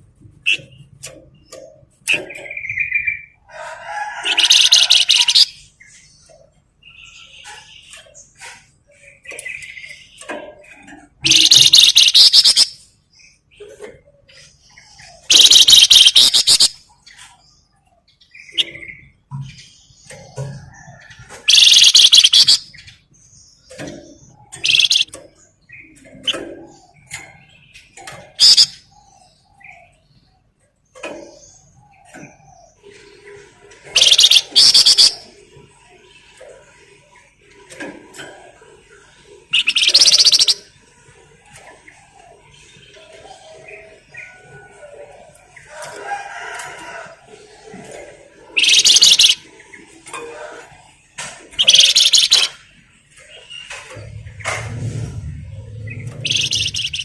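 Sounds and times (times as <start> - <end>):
bird chirps: 4.3 - 35.7, 39.5 - 40.8, 48.5 - 50.2, 51.5 - 57.0
bird singing chirps and whistles: 11.2 - 12.8, 15.2 - 16.8, 21.5 - 22.8, 24.5 - 25.2, 28.4 - 28.8, 33.9 - 35.3, 39.6 - 40.7, 48.6 - 49.4, 51.6 - 52.6, 56.0 - 57.0
low rumble: 53.8 - 57.0.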